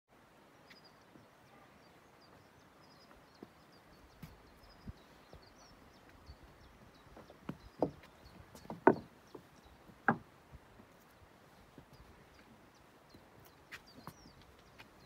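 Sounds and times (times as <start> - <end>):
small birds chirping: 0.2 - 15.0
footsteps on rocks: 6.0 - 10.9, 13.4 - 15.0.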